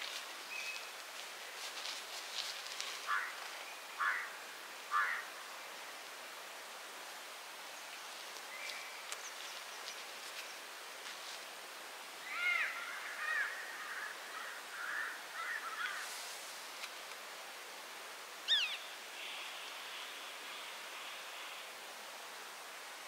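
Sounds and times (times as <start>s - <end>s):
steady faint hiss: 0.0s - 23.0s
birds chirping: 18.5s - 20.8s.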